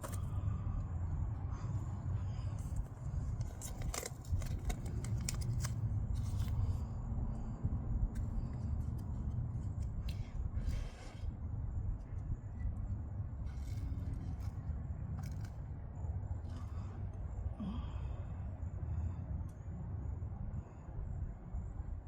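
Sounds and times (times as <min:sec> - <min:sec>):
steady low rumble: 0:00.0 - 0:22.0
scrapes and rustling clicks: 0:02.6 - 0:06.8.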